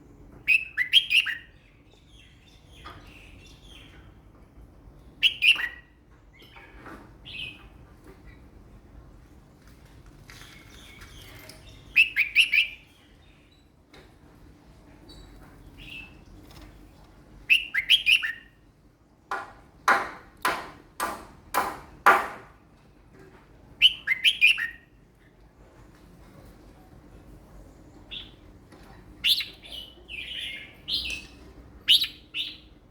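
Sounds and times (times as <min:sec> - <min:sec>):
bird singing chirped phrases: 0:27.7 - 0:32.7.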